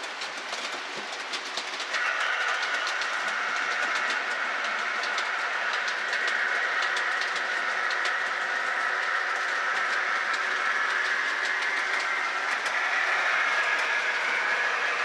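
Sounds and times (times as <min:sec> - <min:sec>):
wheels clicking over rail joints: 0:00.0 - 0:15.0
model train motor whine: 0:01.5 - 0:15.0.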